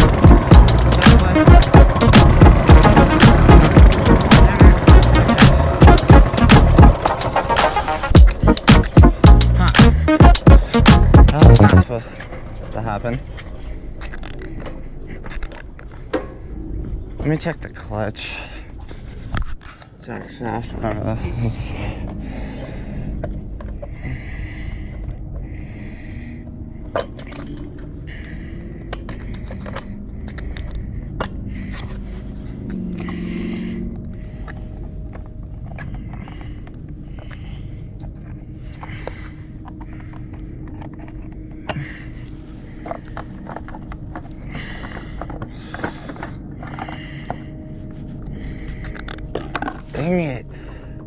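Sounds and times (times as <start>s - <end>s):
low steady rumble: 0.0s - 7.0s.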